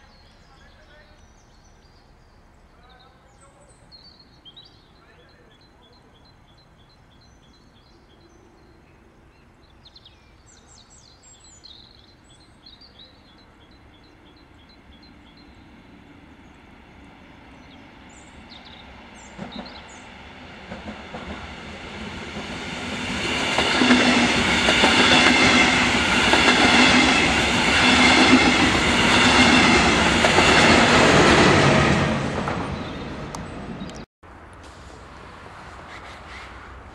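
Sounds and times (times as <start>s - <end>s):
train passing: 13.2s - 36.9s.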